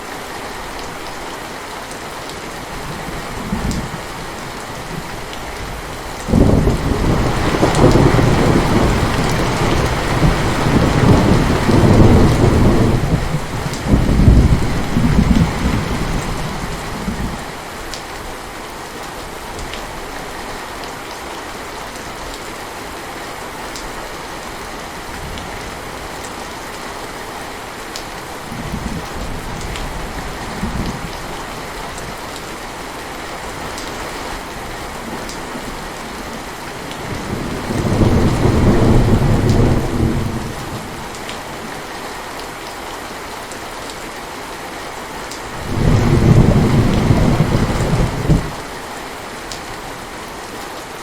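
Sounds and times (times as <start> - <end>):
heavy rain falling: 0.0 - 51.0
rolling thunder: 6.3 - 17.4, 37.0 - 41.0, 45.6 - 48.6.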